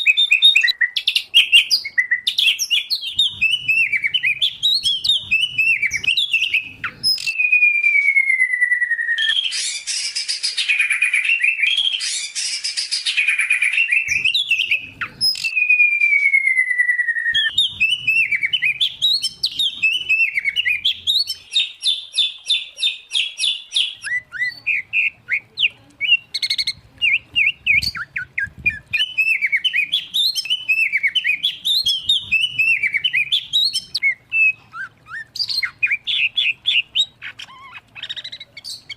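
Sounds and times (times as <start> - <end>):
falling bird whistles: 0.0 - 21.4
bird chirping: 0.0 - 38.9.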